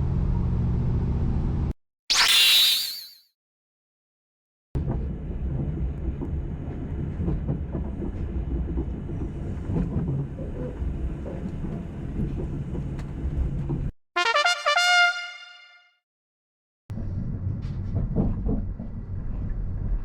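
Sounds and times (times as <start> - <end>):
train rumbling: 4.9 - 13.9.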